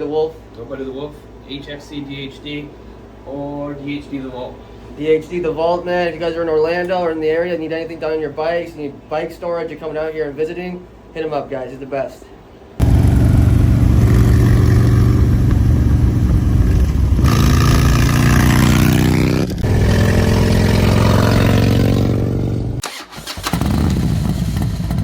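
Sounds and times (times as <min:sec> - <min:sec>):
motorcycle engine revving: 0:12.8 - 0:25.0.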